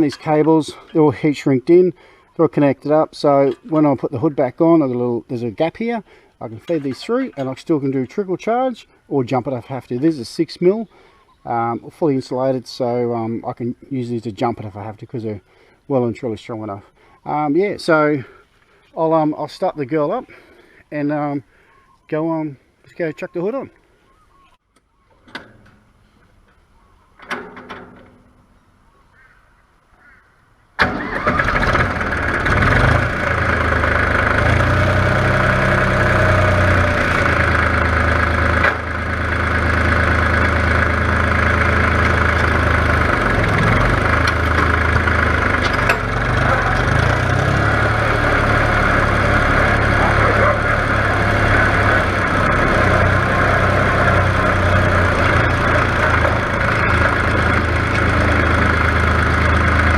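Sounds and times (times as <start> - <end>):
tractor engine starting and idling: 0.0 - 10.8, 30.8 - 59.9.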